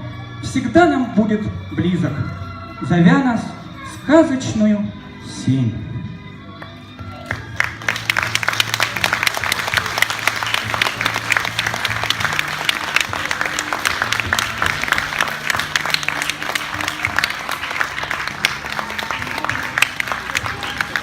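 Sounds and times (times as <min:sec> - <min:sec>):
music playing: 0:00.0 - 0:21.0
audience applauding: 0:07.3 - 0:21.0.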